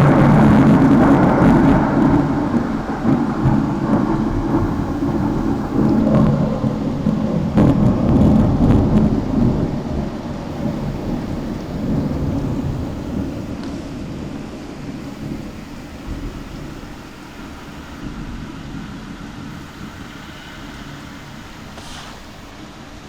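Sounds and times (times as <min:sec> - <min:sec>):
thunder rumbling: 0:00.0 - 0:06.8, 0:10.5 - 0:13.5, 0:15.0 - 0:18.4
rain falling: 0:10.5 - 0:13.5.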